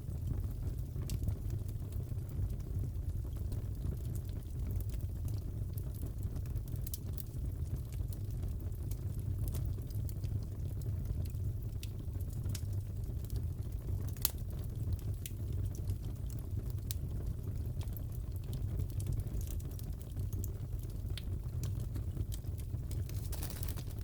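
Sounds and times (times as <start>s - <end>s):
fire burning rumble: 0.0s - 24.0s
wood popping and snapping: 22.9s - 24.0s.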